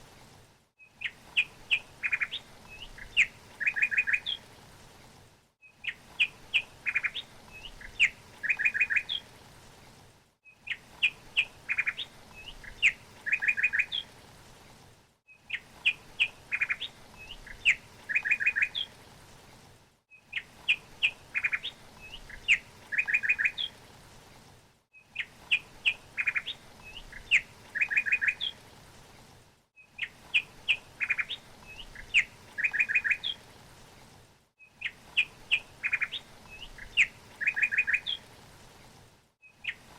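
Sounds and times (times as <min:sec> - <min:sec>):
songbird chirping: 0:00.8 - 0:04.5, 0:05.6 - 0:09.3, 0:10.4 - 0:14.2, 0:15.3 - 0:19.0, 0:20.1 - 0:23.8, 0:24.9 - 0:28.6, 0:29.8 - 0:33.4, 0:34.6 - 0:38.3, 0:39.4 - 0:39.9.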